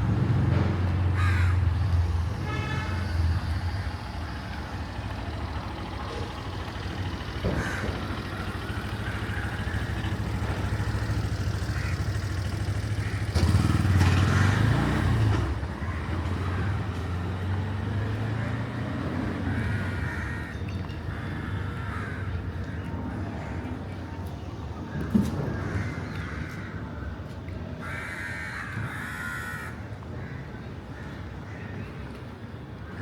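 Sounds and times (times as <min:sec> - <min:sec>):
low hum of traffic: 0:00.0 - 0:33.0
vehicle engines passing: 0:00.0 - 0:33.0
crows cawing: 0:01.1 - 0:01.7, 0:07.1 - 0:14.9, 0:19.4 - 0:22.8, 0:25.6 - 0:26.8, 0:27.8 - 0:31.8.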